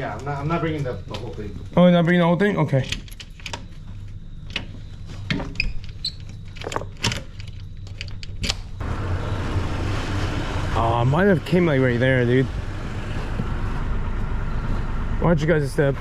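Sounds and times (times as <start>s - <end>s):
vehicle low hum: 0.0s - 16.0s.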